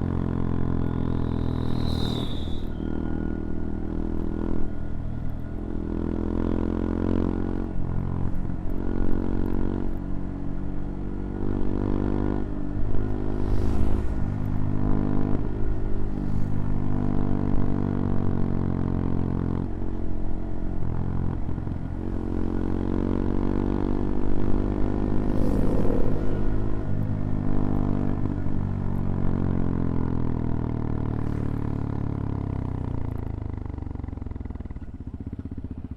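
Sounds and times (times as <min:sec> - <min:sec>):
small motorcycle engine revving: 0:24.8 - 0:27.8.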